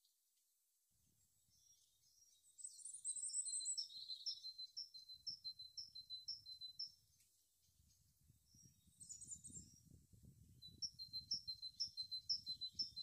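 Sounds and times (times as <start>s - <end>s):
bird singing high-pitched: 2.6s - 7.0s, 8.5s - 9.9s, 10.6s - 13.0s.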